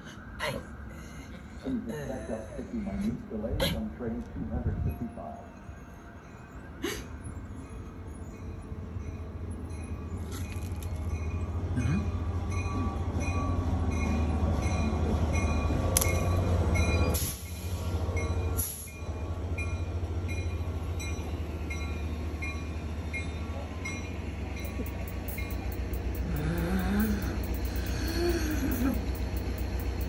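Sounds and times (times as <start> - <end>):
train rumbling: 0.0 - 30.0
faint regular ticking: 24.6 - 30.0.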